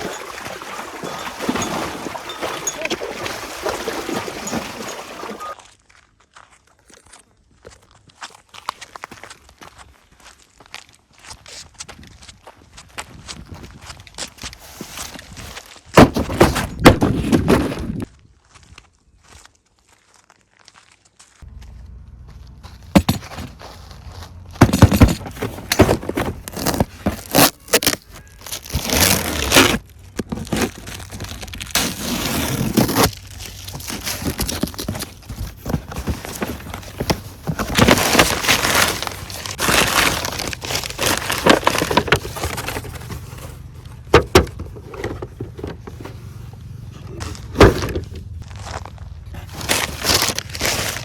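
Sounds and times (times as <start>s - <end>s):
plastic and cardboard crinkling: 14.2s - 18.2s, 22.8s - 51.0s.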